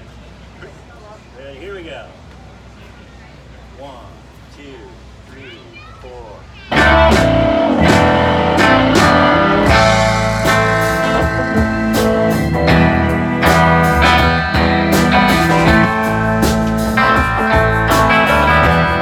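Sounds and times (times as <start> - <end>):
live band playing: 6.7 - 19.0.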